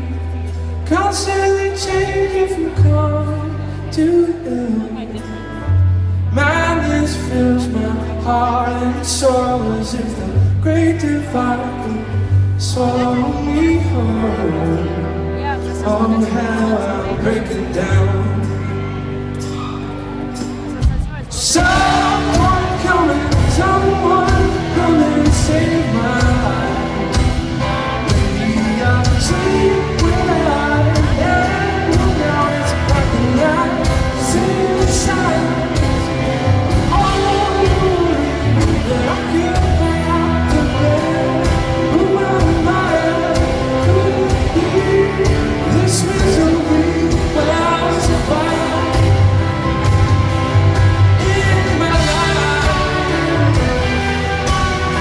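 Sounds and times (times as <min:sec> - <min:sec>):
guitars: 0:00.0 - 0:55.0
live rock band playing: 0:00.0 - 0:55.0
person singing: 0:00.0 - 0:55.0
drums beating: 0:19.5 - 0:55.0.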